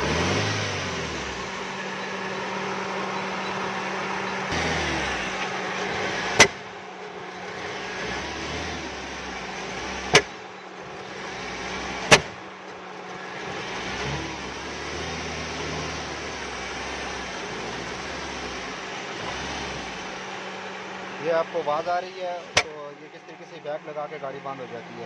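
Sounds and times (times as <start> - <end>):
car engine misfiring: 0.0 - 24.1
man talking: 21.2 - 25.0.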